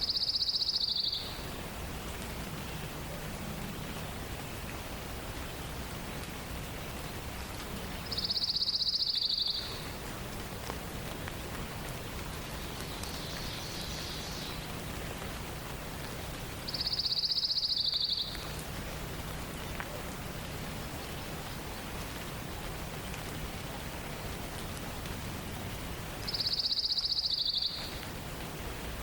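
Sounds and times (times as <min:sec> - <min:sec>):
songbird high-pitched trill: 0:00.0 - 0:01.4, 0:08.1 - 0:09.8, 0:16.7 - 0:18.5, 0:26.3 - 0:28.0.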